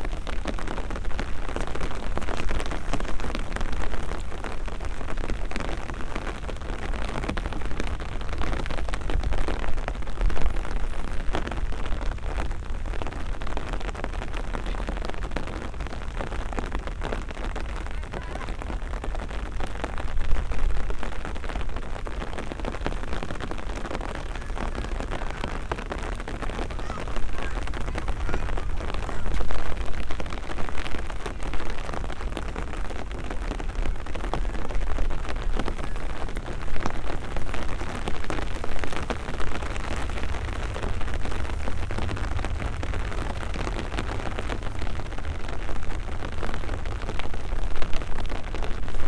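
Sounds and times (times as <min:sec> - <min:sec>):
rain pattering: 0:00.0 - 0:49.0
deep rumble: 0:36.4 - 0:46.1.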